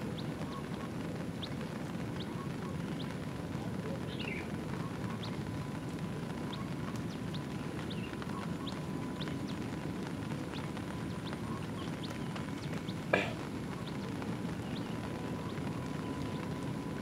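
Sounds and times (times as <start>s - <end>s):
heavy rain and wind: 0.0s - 17.0s.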